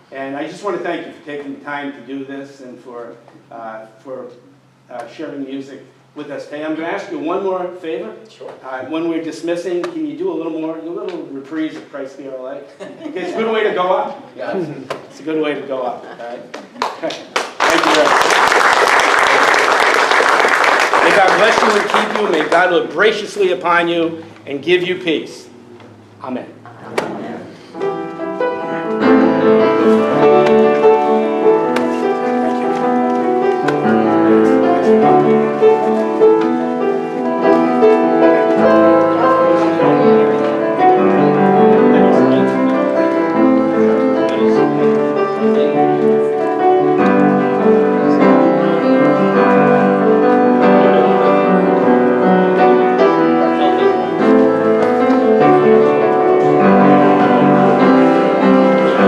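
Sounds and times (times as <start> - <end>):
piano playing a hymn: 17.7 - 25.1, 26.5 - 59.0.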